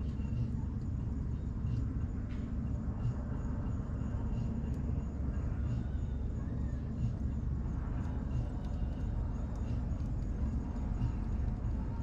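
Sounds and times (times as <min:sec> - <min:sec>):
fire low rumble: 0:00.0 - 0:12.0
bonfire crackles: 0:07.4 - 0:12.0.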